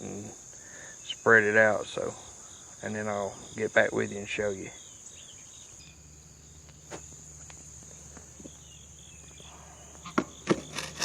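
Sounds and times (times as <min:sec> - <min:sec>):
crickets chirring: 0:00.0 - 0:11.0
sharp clicks or knocks: 0:10.1 - 0:11.0.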